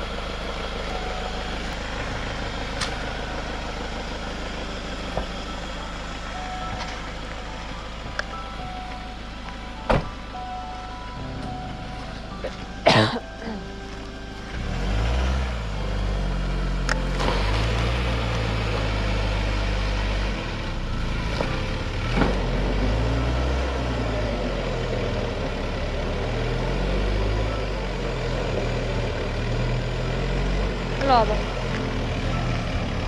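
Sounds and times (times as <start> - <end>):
van engine revving: 0.0 - 33.0.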